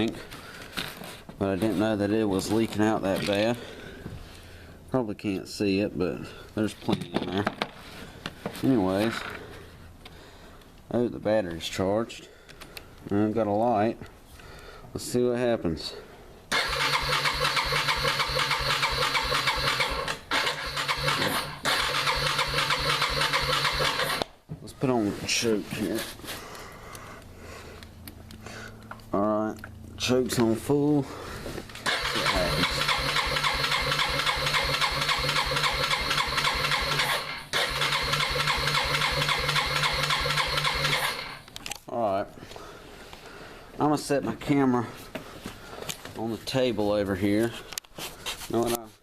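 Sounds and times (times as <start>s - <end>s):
electric starter cranking engine: 16.5s - 24.3s, 31.8s - 41.5s.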